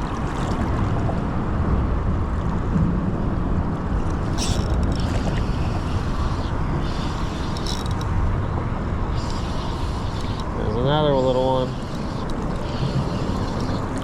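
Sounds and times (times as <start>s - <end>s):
wind buffeting microphone: 0.0s - 14.0s
short hissy rustles: 4.4s - 8.1s, 9.1s - 14.0s.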